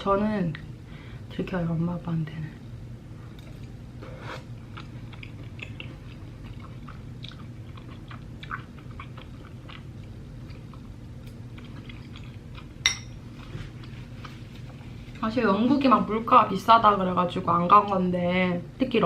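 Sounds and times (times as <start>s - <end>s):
steady low hum: 0.0s - 19.0s
person chewing food: 3.2s - 15.0s.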